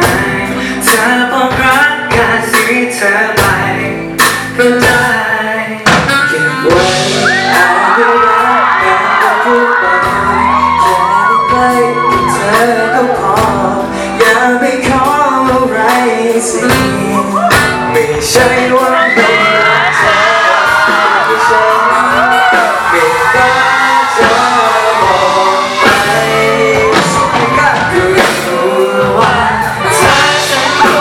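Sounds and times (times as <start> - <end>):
drum beat: 0.0 - 5.2, 5.8 - 31.0
live pop band music: 0.0 - 31.0
crowd screaming: 6.6 - 14.1, 16.5 - 31.0.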